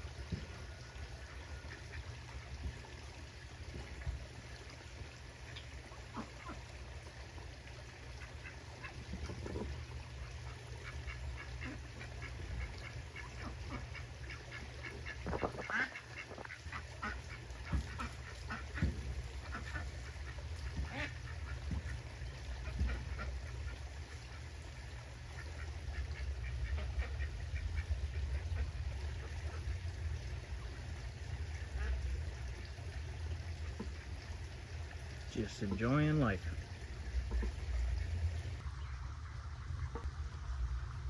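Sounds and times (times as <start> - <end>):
ducks quacking: 6.1 - 6.7, 8.2 - 29.7
low rumble: 37.1 - 41.0.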